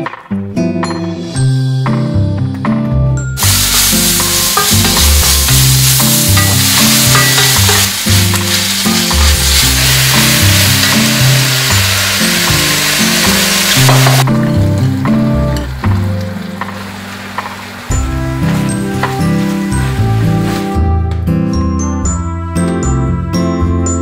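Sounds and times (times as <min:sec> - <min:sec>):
background music with bass: 0:00.0 - 0:24.0
vegetables sizzling in a wok: 0:03.4 - 0:20.8.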